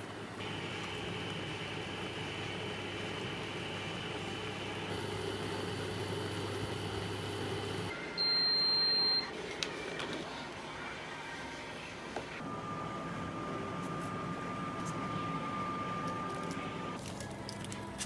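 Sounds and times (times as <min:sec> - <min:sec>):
machine hum: 0:00.1 - 0:07.9.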